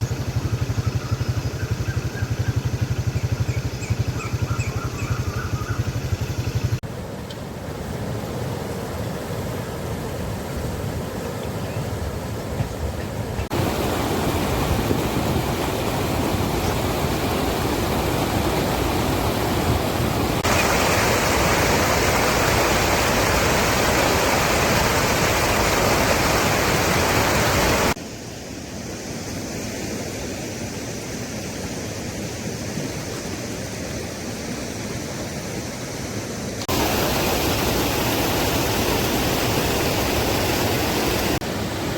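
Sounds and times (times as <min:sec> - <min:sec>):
engine low pulsing: 0:00.0 - 0:06.8
floodwater rushing: 0:06.7 - 0:28.0, 0:36.6 - 0:41.9.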